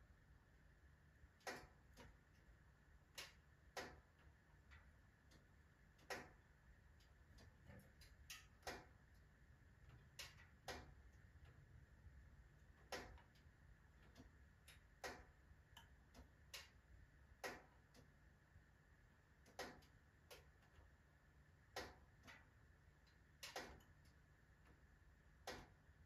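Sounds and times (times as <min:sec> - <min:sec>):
wood fire crackling and popping: 0:01.2 - 0:18.3.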